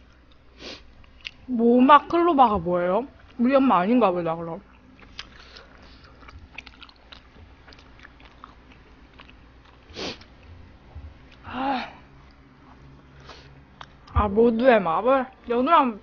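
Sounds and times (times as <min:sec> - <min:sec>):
chewing with wet mouth noises: 0:04.7 - 0:11.5.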